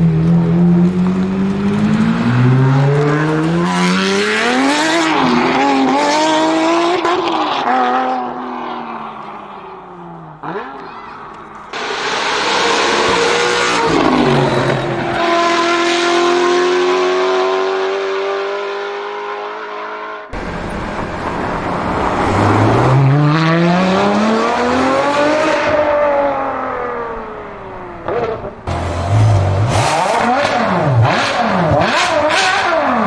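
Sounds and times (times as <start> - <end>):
sports car engines revving: 0.0 - 33.0.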